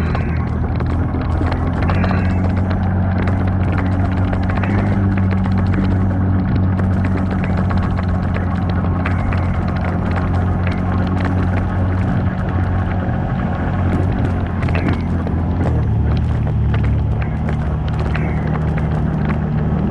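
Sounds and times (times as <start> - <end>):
vehicle engine humming: 0.0 - 19.9
vehicle rattling clicks and knocks: 0.0 - 19.9.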